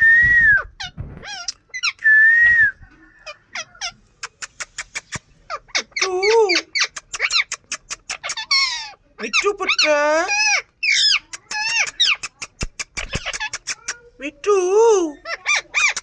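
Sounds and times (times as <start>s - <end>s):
parrot squawking: 0.8s - 2.0s, 3.2s - 14.1s, 14.9s - 16.0s
parrot chirps and clicks: 0.8s - 2.1s, 3.6s - 14.0s, 15.3s - 16.0s.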